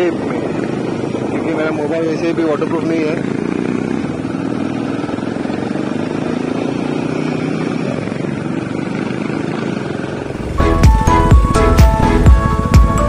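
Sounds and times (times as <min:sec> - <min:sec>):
motorcycle engine running: 0:00.0 - 0:13.0
background music with a beat: 0:10.4 - 0:13.0.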